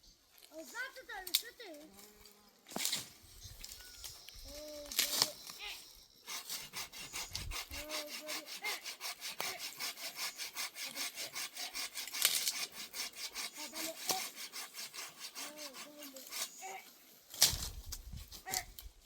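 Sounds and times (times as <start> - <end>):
hand saw cutting wood: 6.2 - 19.0.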